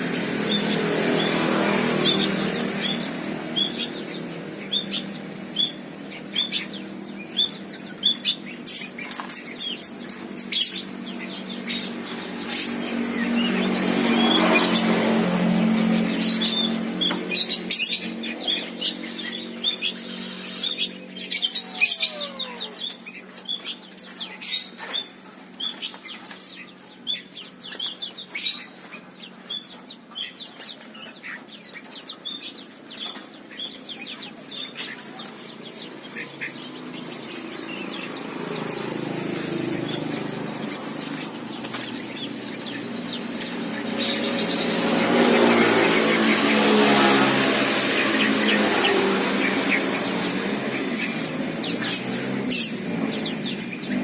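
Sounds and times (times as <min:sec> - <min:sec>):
songbirds chirping: 0:00.0 - 0:54.0
wings fluttering: 0:12.0 - 0:26.8, 0:38.8 - 0:52.9.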